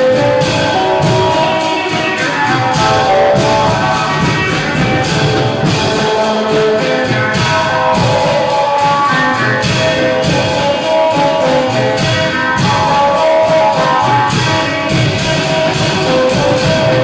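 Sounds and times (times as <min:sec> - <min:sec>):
cymbals: 0:00.0 - 0:17.0
long drums beating: 0:00.0 - 0:17.0
sustained melody line: 0:00.2 - 0:08.1.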